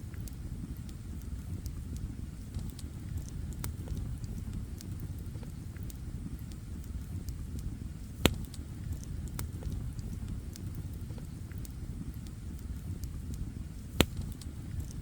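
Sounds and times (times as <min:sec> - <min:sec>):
campfire crackling: 0:00.0 - 0:15.0
loud sharp pop from fire: 0:08.2 - 0:08.6, 0:14.0 - 0:14.5.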